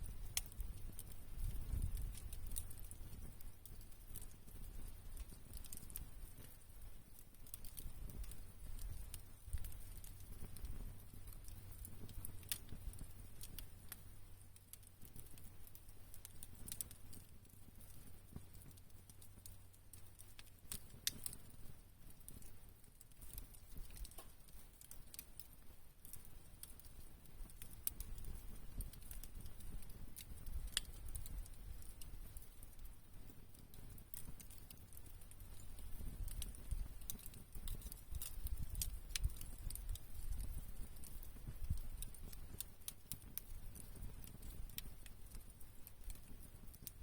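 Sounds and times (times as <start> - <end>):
campfire crackling and popping: 0.0 - 47.0
low steady fire rumble: 0.0 - 47.0.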